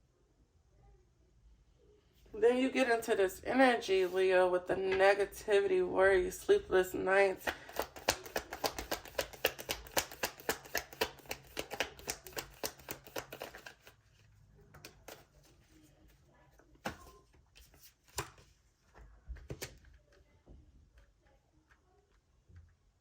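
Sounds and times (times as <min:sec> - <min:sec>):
cards tapping: 0:07.4 - 0:14.0, 0:14.7 - 0:15.3
cards being shuffled: 0:07.5 - 0:15.8, 0:16.8 - 0:19.8.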